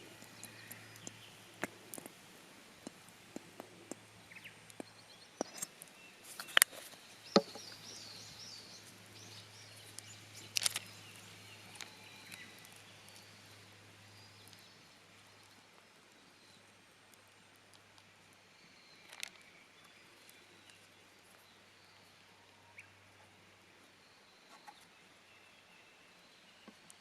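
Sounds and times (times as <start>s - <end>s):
sharp clicks and knocks: 6.4s - 7.8s.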